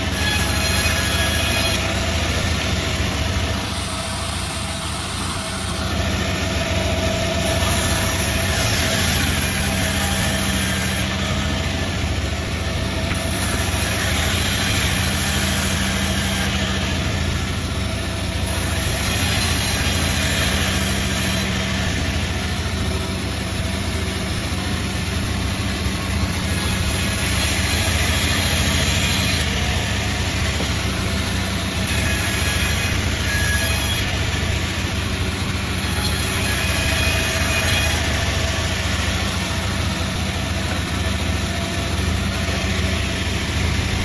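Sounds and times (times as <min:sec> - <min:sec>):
sawmill running: 0:00.0 - 0:44.0.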